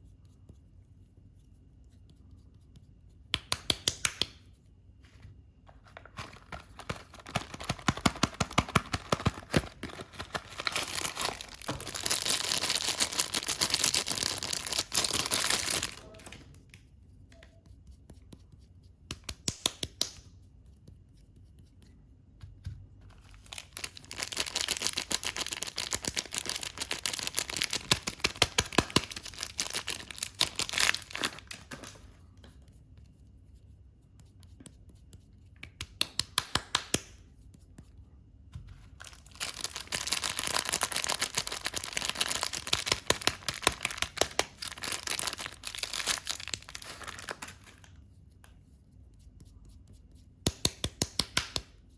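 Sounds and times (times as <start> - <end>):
packaging crinkling and tearing: 6.0 - 16.5, 23.1 - 32.1, 39.0 - 47.9.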